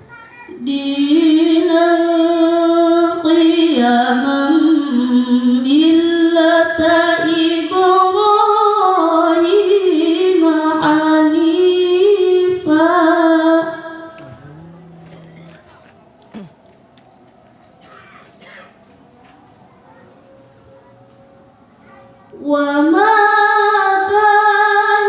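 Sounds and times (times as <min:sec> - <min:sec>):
woman reciting melodically: 0:00.5 - 0:16.6, 0:22.3 - 0:25.0.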